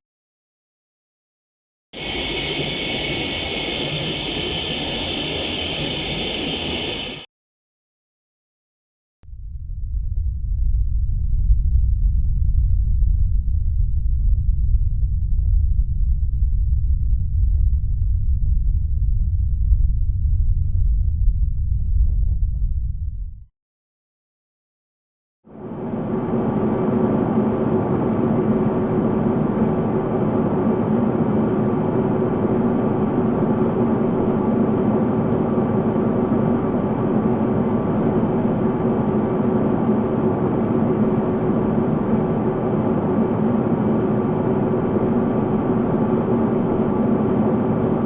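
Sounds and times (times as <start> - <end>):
synthesized drone: 2.0 - 7.3.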